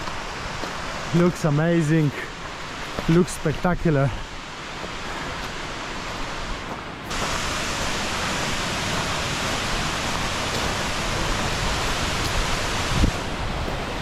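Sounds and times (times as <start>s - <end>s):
waterfall pouring: 7.1s - 14.0s.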